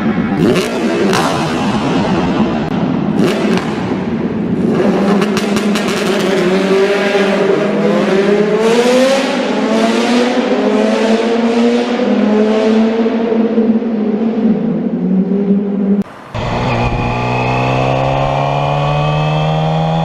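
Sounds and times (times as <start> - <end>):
motorcycle engine accelerating hard: 16.3 - 20.0.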